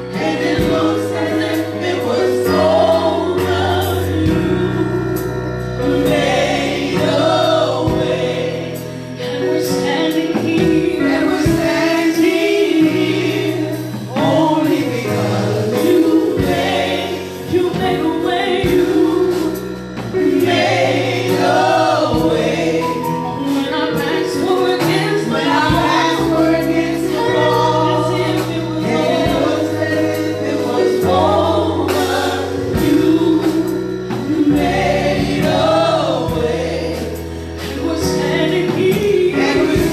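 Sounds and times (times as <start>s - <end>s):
choir singing: 0.0s - 39.9s
held bass notes: 0.0s - 39.9s
instrumental backing: 0.0s - 39.9s.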